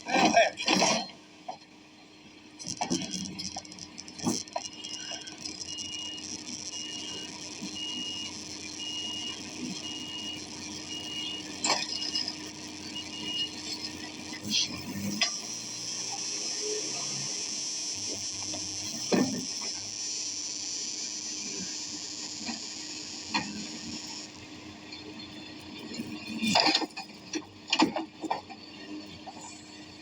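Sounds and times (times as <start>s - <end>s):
reversing alarm beeping: 3.0s - 20.4s.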